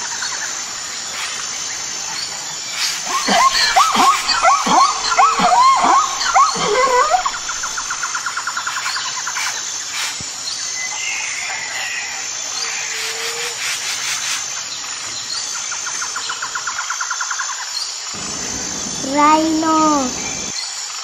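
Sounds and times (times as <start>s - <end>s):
rapid insect trill: 0.0s - 20.6s
bird chirps: 2.8s - 8.1s.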